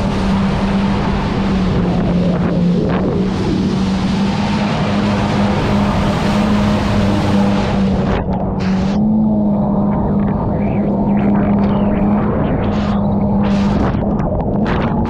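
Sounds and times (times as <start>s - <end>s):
rush of wind and water spray: 0.0s - 9.0s
jet ski engine running: 0.0s - 15.0s.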